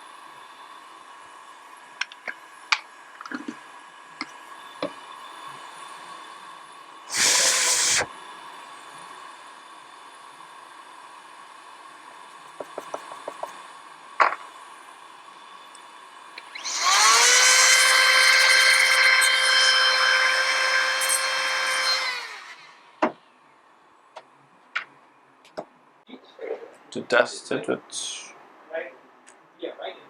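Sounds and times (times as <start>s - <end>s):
hot air blower whining: 7.1s - 8.1s, 16.4s - 22.8s.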